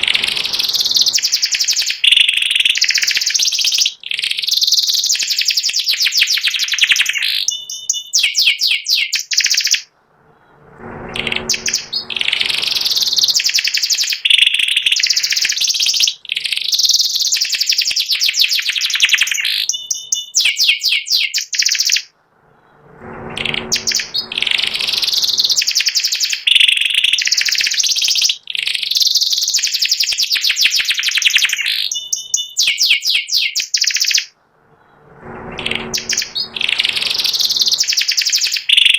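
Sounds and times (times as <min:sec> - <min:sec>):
canary singing trills: 0:00.0 - 0:09.9, 0:11.2 - 0:22.1, 0:23.3 - 0:34.4, 0:35.4 - 0:38.9.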